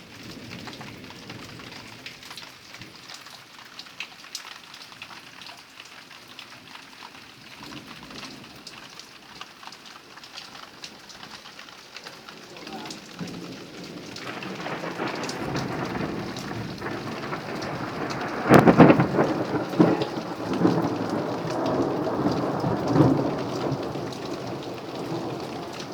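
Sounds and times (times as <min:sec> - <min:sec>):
heavy rain falling: 0:00.0 - 0:25.9
thunder rumbling and cracking: 0:12.1 - 0:25.9.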